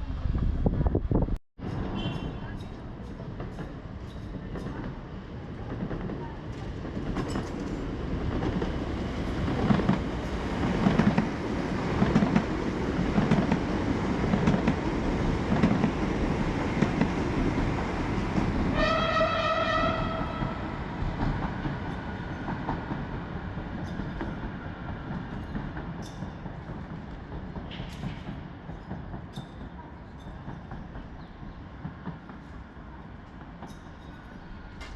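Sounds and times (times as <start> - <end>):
train rumbling: 0.0 - 34.9
train horn blast: 18.7 - 20.7.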